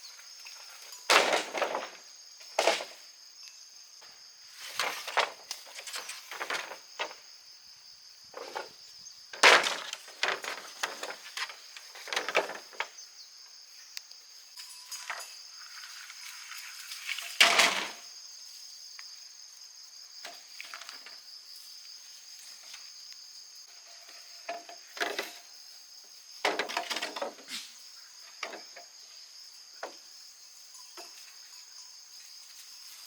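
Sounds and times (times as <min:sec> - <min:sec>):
high-pitched insect chorus: 0:00.0 - 0:33.0
handling knocks and rustles: 0:00.3 - 0:03.1, 0:04.6 - 0:07.3, 0:08.4 - 0:13.0, 0:26.4 - 0:27.7.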